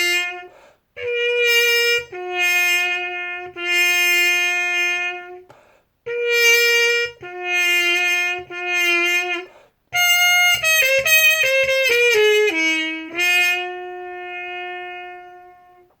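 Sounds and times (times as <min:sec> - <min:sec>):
solo trumpet melody: 0:00.0 - 0:16.0.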